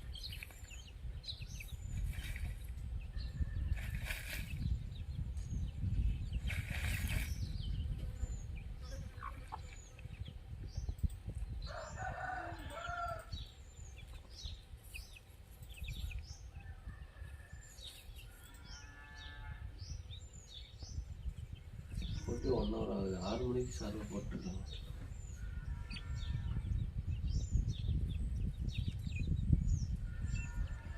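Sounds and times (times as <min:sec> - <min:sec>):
small birds chirping: 0:00.0 - 0:30.9
rooster crowing: 0:11.7 - 0:13.3.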